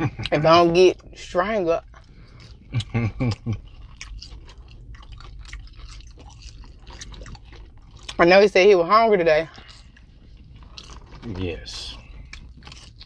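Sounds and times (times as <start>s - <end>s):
person chewing food: 1.8s - 8.3s, 9.4s - 13.0s.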